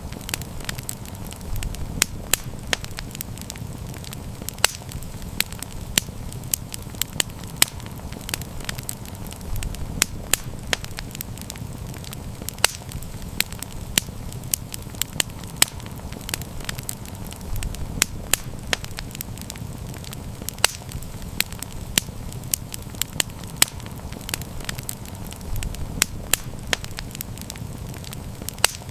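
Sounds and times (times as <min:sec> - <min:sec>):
wood fire crackling and popping: 0:00.0 - 0:28.9.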